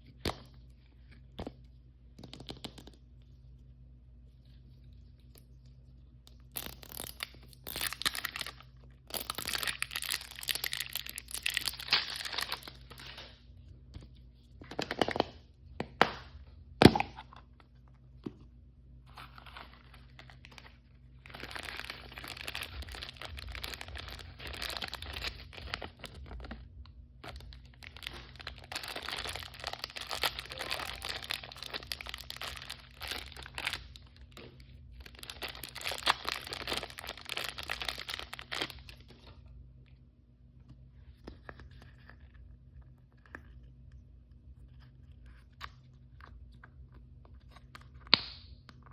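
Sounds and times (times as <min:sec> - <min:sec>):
packaging torn and crinkled: 0:06.5 - 0:13.3, 0:19.2 - 0:26.6, 0:27.2 - 0:39.1.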